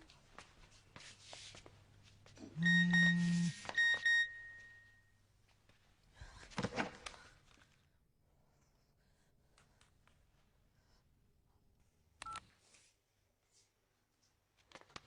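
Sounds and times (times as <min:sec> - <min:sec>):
electronic beeps: 0:02.6 - 0:04.8.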